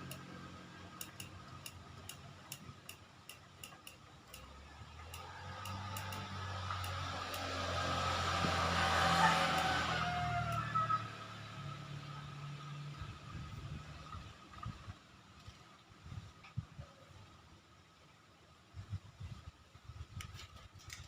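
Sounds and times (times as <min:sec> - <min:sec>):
light rapid ticking: 0:00.0 - 0:07.7
motor vehicle engine: 0:00.0 - 0:15.0.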